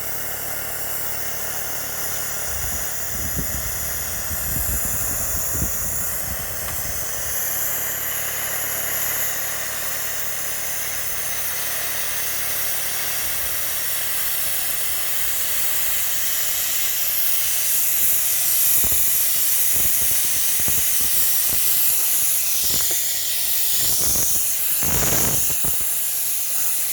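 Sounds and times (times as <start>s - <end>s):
low motor hum: 0.0s - 10.0s
rushing air hiss: 1.6s - 9.3s, 10.1s - 26.9s.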